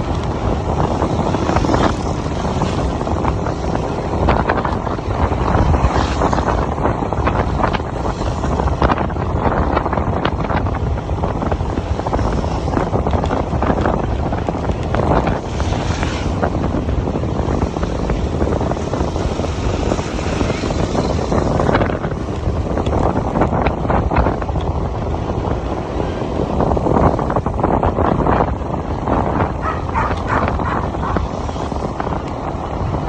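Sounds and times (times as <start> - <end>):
wind buffeting microphone: 0.0 - 33.0
scooter engine running: 25.1 - 33.0.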